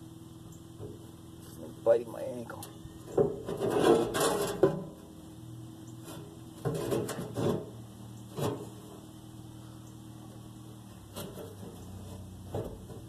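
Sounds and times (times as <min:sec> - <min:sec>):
steady low hum: 0:00.0 - 0:13.0
metal scrapes and clunks: 0:03.0 - 0:05.1, 0:06.0 - 0:09.0, 0:11.1 - 0:13.0.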